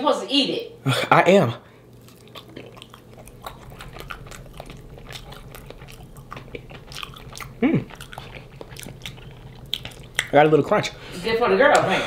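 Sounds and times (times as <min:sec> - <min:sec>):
person chewing crunchy fried chicken: 0:01.8 - 0:11.0.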